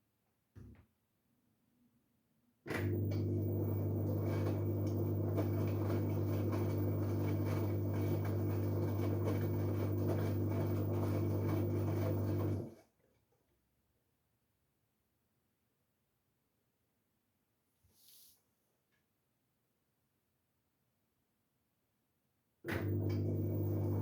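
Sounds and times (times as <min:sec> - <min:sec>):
washing machine humming: 0:02.7 - 0:12.8, 0:22.7 - 0:24.0.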